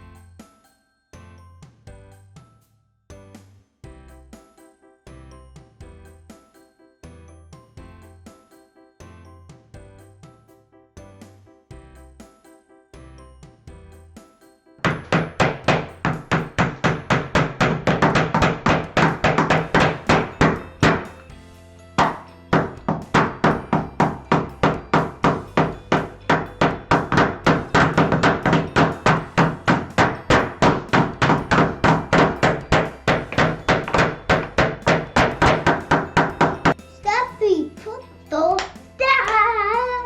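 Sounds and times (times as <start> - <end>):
background music: 0.0 - 40.0
hammer striking wood: 14.8 - 21.3, 22.0 - 36.8.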